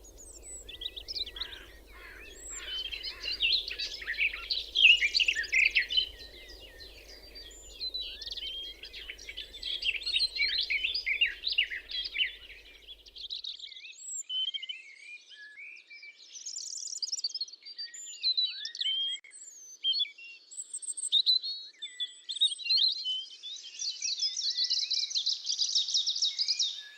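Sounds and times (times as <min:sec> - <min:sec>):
songbirds chirping and singing: 0:00.0 - 0:14.5, 0:23.1 - 0:26.9.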